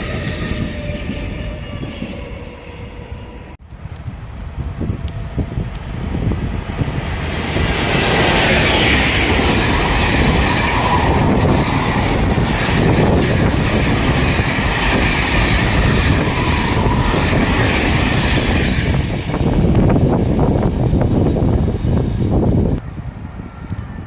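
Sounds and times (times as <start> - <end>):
train wheels clattering on rails: 6.7 - 20.6.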